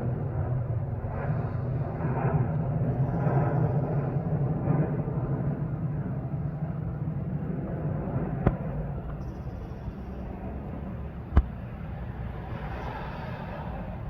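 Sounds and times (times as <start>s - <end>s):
low vehicle rumble: 0.0s - 14.0s.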